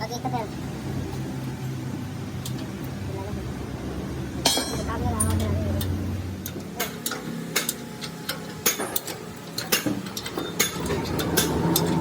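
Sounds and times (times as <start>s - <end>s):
low background hum: 0.0s - 12.0s
hand tools clicking on metal: 5.2s - 12.0s.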